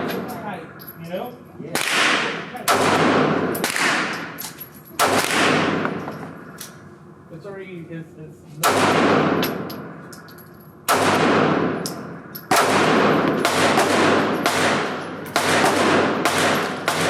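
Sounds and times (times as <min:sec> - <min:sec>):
pistol shots echoing: 0:01.7 - 0:06.5, 0:08.6 - 0:10.2, 0:10.8 - 0:17.0.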